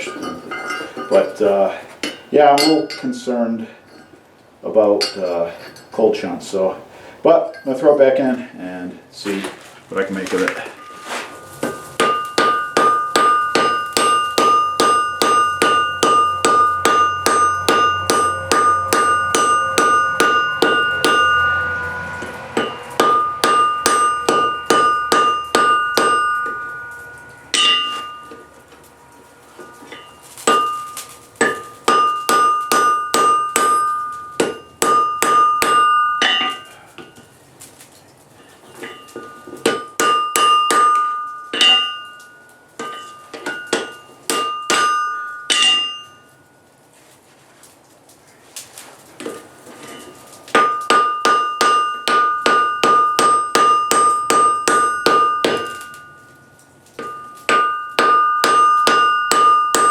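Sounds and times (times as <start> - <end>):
hammer striking steel on anvil: 0.0 - 3.3, 10.7 - 28.9, 29.5 - 37.2, 38.8 - 46.3, 49.2 - 59.9.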